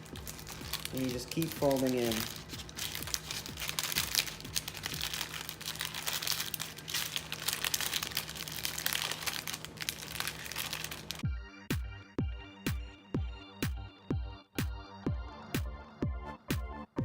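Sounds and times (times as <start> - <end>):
paper crinkling and rustling: 0.0 - 11.2
steady low hum: 0.0 - 16.2
electronic music with heavy bass: 11.2 - 17.0.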